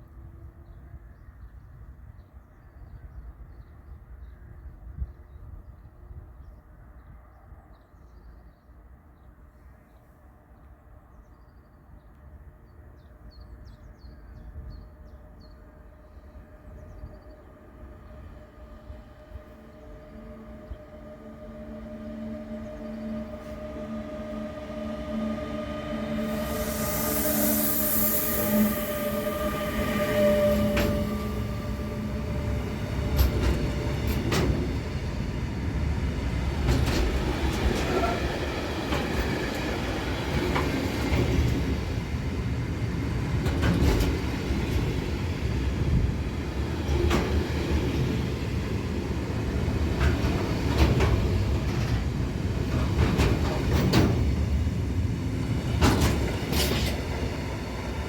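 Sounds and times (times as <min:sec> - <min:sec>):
train rumbling past: 0:12.6 - 0:58.0
train whine: 0:14.6 - 0:58.0.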